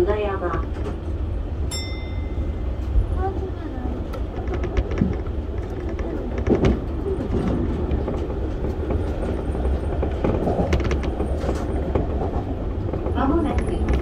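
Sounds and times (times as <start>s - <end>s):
train wheels rumbling on rail: 0.0s - 14.0s
sharp track clicks: 4.0s - 14.0s.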